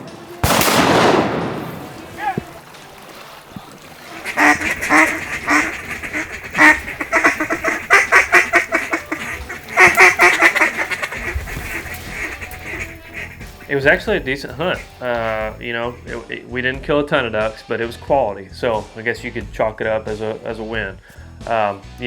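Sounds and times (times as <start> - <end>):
duck quacking: 4.1 - 15.5.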